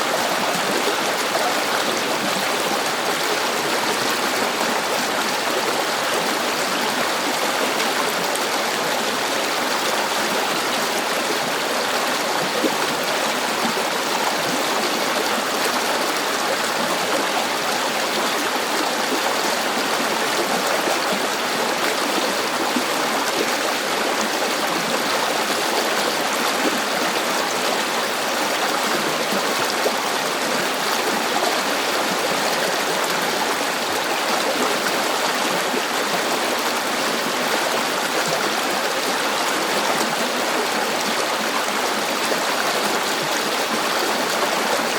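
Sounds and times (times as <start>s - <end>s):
river water rushing over rocks: 0.0s - 44.9s.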